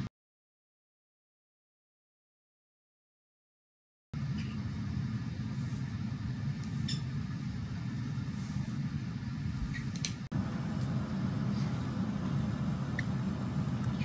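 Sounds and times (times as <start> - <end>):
steady low hum: 4.2 - 14.0.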